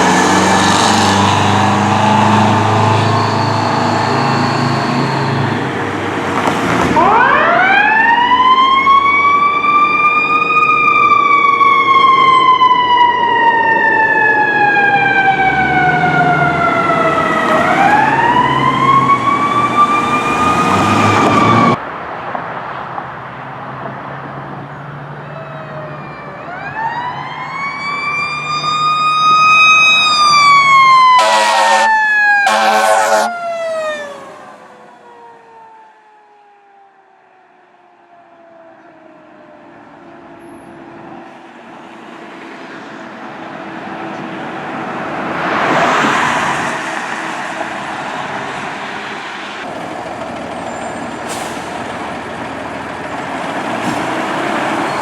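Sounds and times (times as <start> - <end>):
fire truck mechanical siren: 0.0 - 21.8, 25.2 - 40.8
air horn blasts: 31.1 - 33.4.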